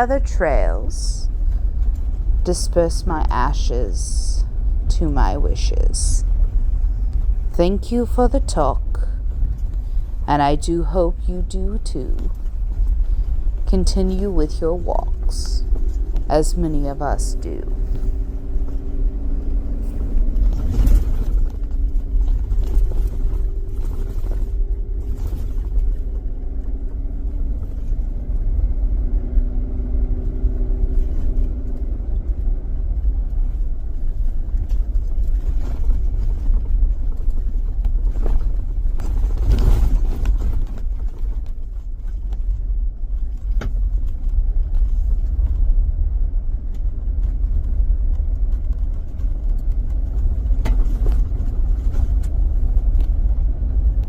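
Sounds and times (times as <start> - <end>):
car engine and road noise rumble: 14.9 - 54.0.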